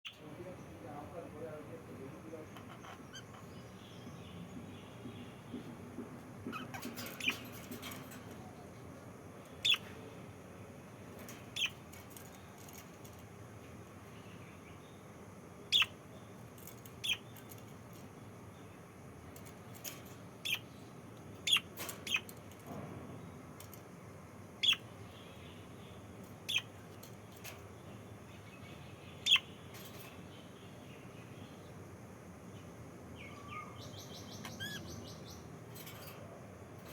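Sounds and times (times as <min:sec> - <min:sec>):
lovebirds chirping: 0:00.1 - 0:22.5, 0:24.6 - 0:36.2
steady low hiss: 0:00.1 - 0:36.9.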